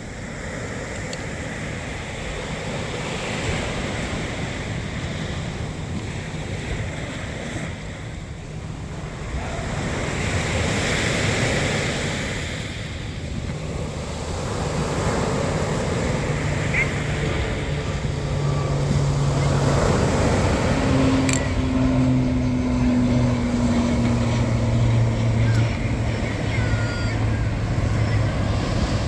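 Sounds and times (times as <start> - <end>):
sea waves washing onto shore: 0.0 - 29.0
wind buffeting microphone: 0.0 - 29.0.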